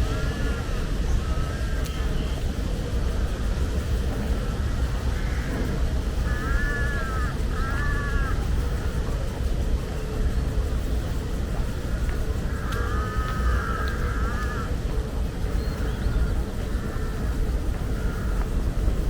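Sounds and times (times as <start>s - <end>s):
steady low rumble: 0.0s - 19.0s
crow cawing: 0.1s - 1.8s, 5.1s - 5.5s, 6.2s - 8.4s, 12.5s - 14.8s, 15.8s - 18.5s.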